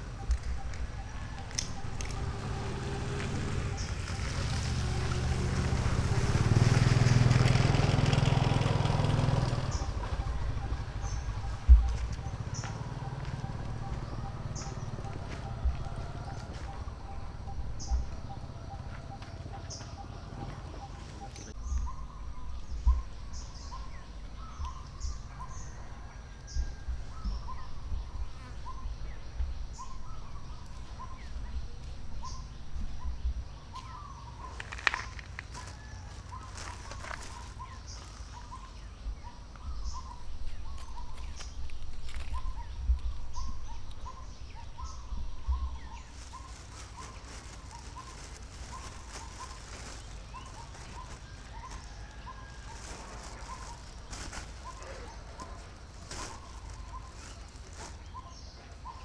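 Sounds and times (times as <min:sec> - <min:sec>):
higher bird chirps: 0:09.1 - 0:25.9.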